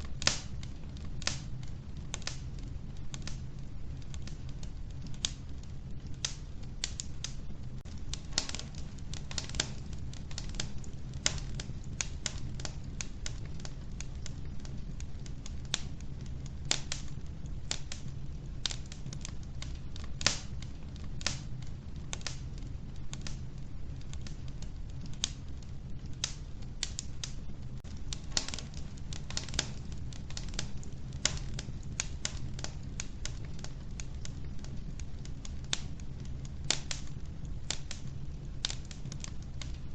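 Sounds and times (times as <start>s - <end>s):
wood fire burning in a stove: 0.0s - 39.9s.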